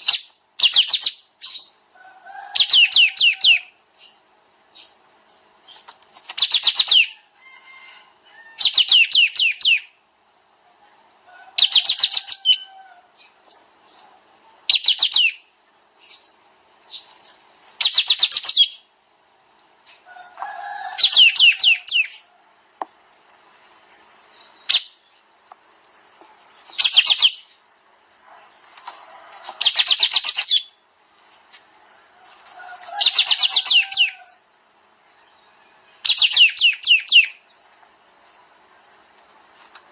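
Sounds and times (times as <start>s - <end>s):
songbird singing rapid notes: 0.0s - 1.9s, 2.6s - 7.7s, 8.6s - 10.0s, 11.6s - 19.0s, 19.8s - 22.3s, 23.2s - 38.7s
soft bird chirps: 2.6s - 10.0s, 11.6s - 18.9s, 23.2s - 39.4s.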